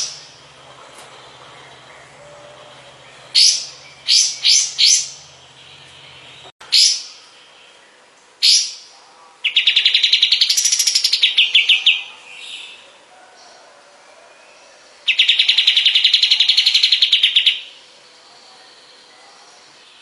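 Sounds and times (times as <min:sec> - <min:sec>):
songbird rattling trill: 0:01.2 - 0:07.0.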